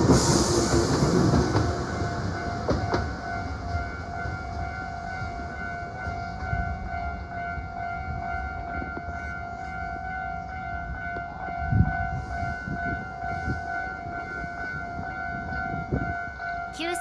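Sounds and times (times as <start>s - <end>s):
train wheels knocking: 0.0s - 3.7s
electric train rumbling past: 0.0s - 17.0s.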